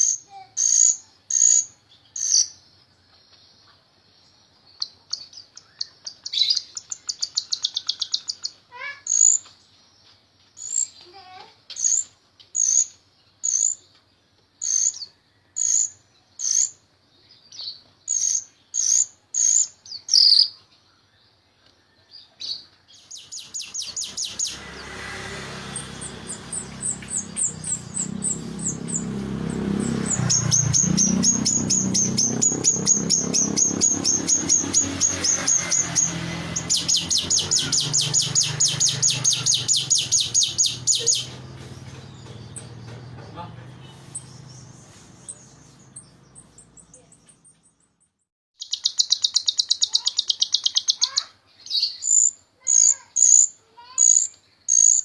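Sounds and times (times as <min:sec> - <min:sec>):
sharp whistled calls: 0:04.8 - 0:09.4, 0:23.0 - 0:25.0, 0:25.6 - 0:42.7, 0:48.6 - 0:53.5
starling singing: 0:23.0 - 0:47.6
fast high trill: 0:23.6 - 0:41.4.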